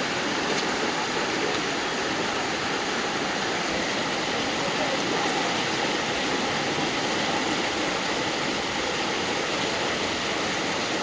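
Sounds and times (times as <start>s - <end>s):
heavy rain: 0.0s - 11.0s
running water: 0.0s - 11.0s.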